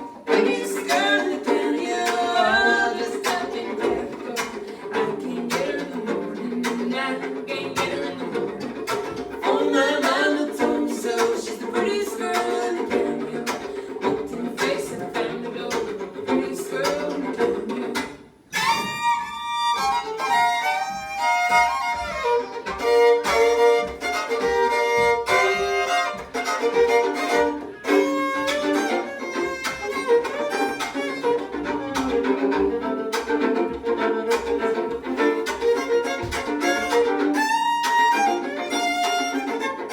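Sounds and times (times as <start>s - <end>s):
scratchy fiddle chop: 0.0s - 4.8s, 16.8s - 39.9s
fiddles playing a tune: 0.0s - 39.9s.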